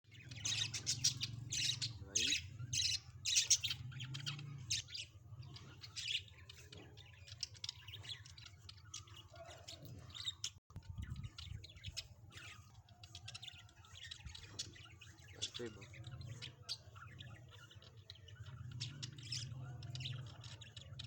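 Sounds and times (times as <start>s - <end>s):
budgerigars chattering and chirping: 0.0s - 21.0s.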